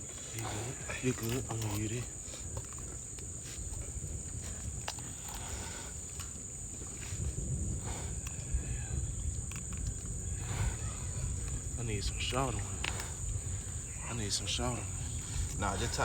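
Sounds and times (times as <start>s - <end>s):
high-pitched insect trill: 0.0s - 16.0s.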